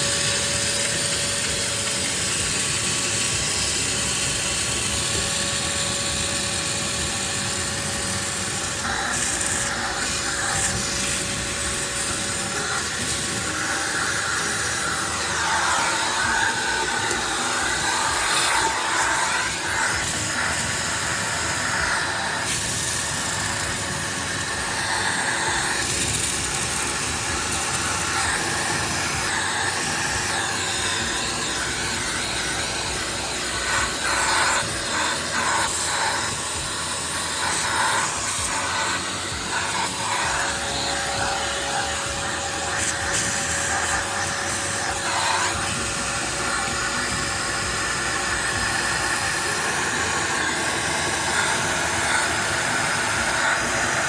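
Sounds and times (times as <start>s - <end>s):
wet vacuum cleaner running: 0.0s - 54.0s.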